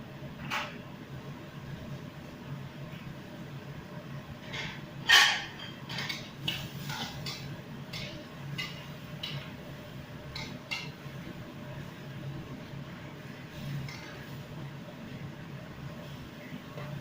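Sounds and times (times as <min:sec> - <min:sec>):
kitchen utensils clinking: 0:04.5 - 0:09.5.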